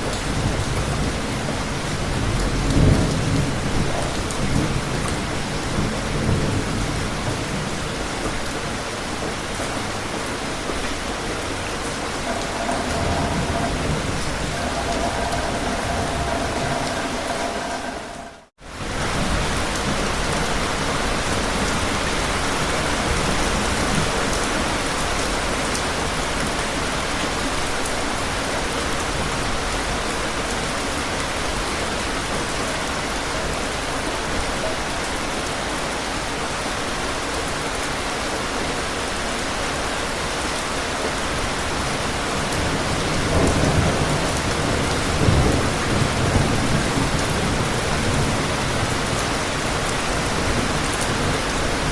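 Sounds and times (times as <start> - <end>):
steady rain hiss: 0.0 - 51.9
distant thunder rumbles: 11.5 - 18.5.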